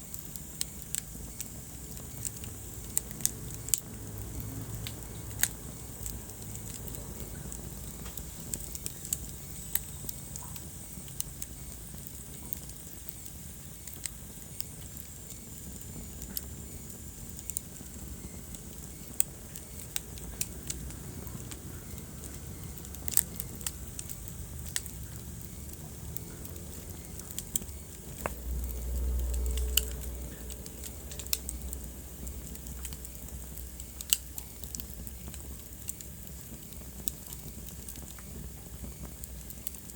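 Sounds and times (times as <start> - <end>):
flames rushing: 0.0 - 39.9
wood fire crackling and popping: 0.0 - 39.9
low rumble: 24.8 - 33.8.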